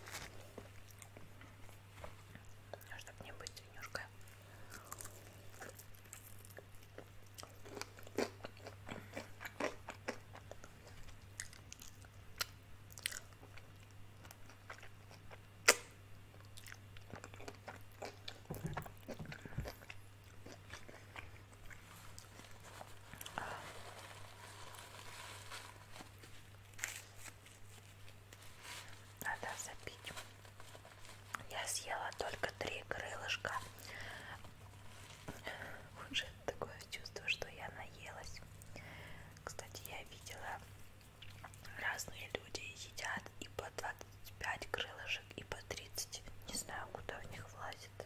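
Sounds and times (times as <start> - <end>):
steady low hum: 0.0 - 48.0
wet chewing: 4.7 - 23.6
crunching of fried breading: 4.8 - 29.2.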